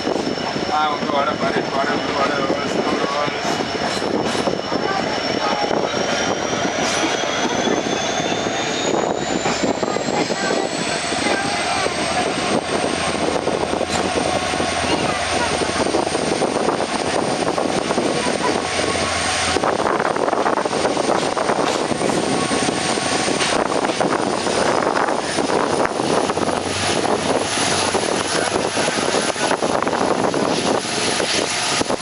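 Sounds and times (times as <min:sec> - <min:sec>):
rushing air: 0:00.0 - 0:32.0
train wheels on rail: 0:00.0 - 0:32.0.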